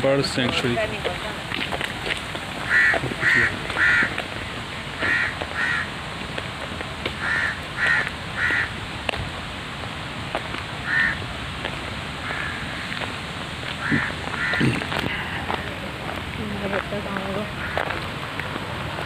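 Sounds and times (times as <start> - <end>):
bird harsh calls: 2.6 - 4.2, 5.0 - 5.9, 7.2 - 8.7, 10.8 - 11.2, 13.8 - 15.3.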